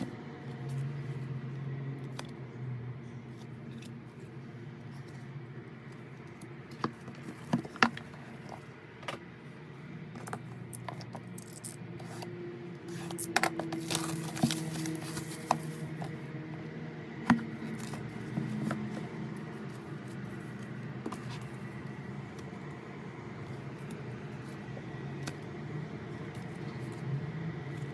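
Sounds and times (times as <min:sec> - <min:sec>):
packaging scraping and rustling: 0:10.2 - 0:16.2, 0:17.2 - 0:22.6.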